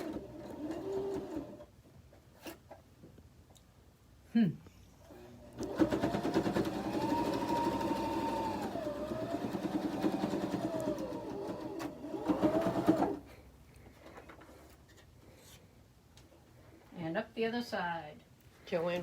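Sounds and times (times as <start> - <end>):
electric sewing machine stitching: 0.0 - 1.7, 5.1 - 13.2.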